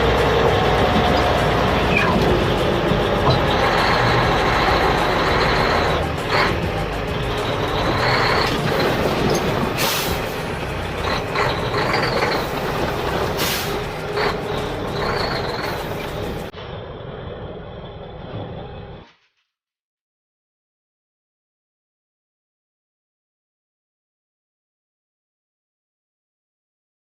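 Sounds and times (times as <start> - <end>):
heavy truck engine running: 0.0 - 19.2
air brake hissing bursts: 9.8 - 10.6, 13.3 - 14.0.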